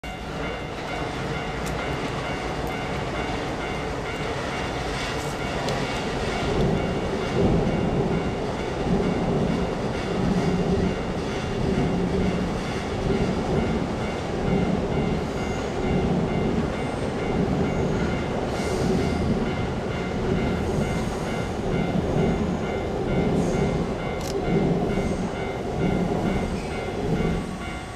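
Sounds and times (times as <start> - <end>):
crossing warning bell: 0.0 - 27.9
train wheels clacking on rails: 0.0 - 27.9.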